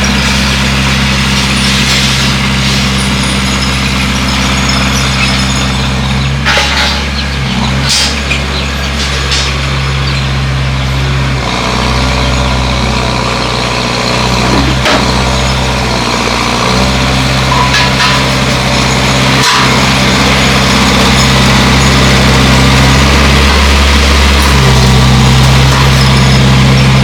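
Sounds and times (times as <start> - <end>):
bulldozer diesel engine running: 0.0 - 27.0
sharp metallic knocks: 17.5 - 22.0.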